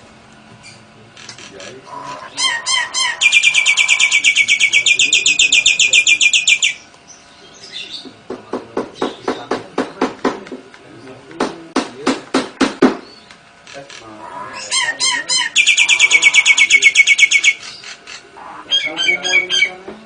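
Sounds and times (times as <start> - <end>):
bird trilling high notes: 1.9 - 6.8, 14.1 - 19.8
bird sharp loud calls: 1.9 - 8.1, 13.9 - 19.8.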